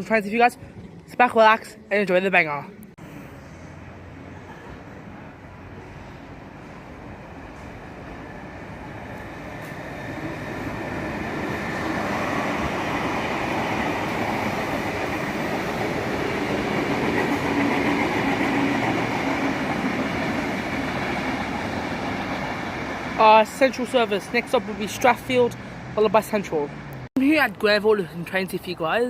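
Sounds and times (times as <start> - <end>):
electric train rumble and whine: 2.6 - 27.1.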